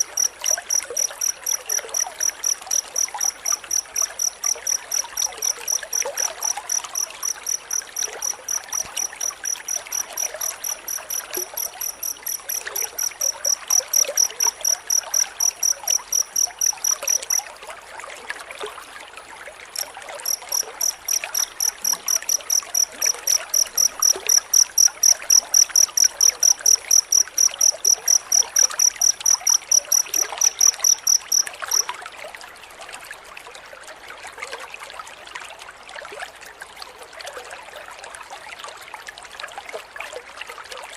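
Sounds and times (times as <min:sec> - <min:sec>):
cricket chirping: 0:00.0 - 0:17.5, 0:19.7 - 0:32.0.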